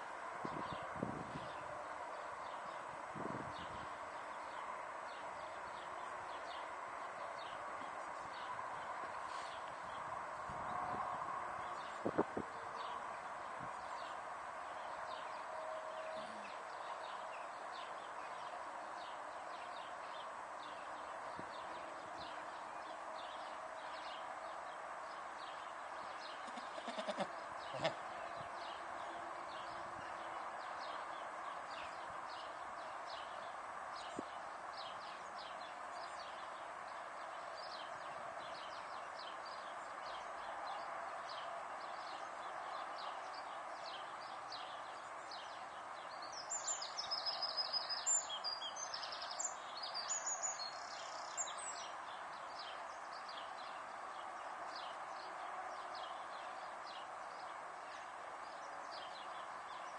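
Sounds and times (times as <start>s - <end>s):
loud bird song: 0.0s - 59.9s
outdoor background hiss: 0.0s - 59.9s
small birds chirping: 16.2s - 59.9s.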